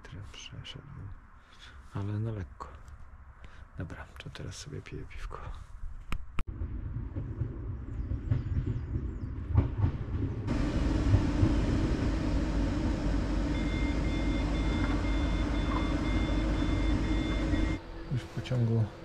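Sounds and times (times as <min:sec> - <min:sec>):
open-air noise: 0:00.0 - 0:19.0
train carriage rumble: 0:06.6 - 0:19.0
thin high whine: 0:10.5 - 0:19.0.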